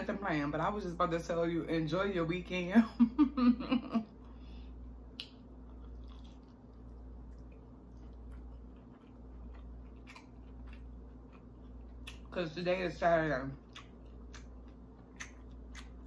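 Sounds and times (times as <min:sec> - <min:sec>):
steady low hum: 0:00.0 - 0:16.0
crunchy biting and chewing: 0:05.2 - 0:12.4, 0:13.6 - 0:16.0.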